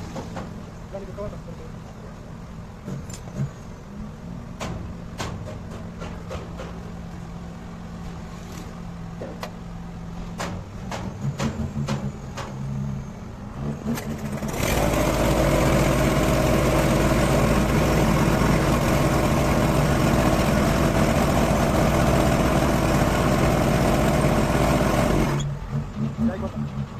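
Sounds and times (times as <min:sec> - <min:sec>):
diesel truck engine cranking and running: 0:10.6 - 0:26.9.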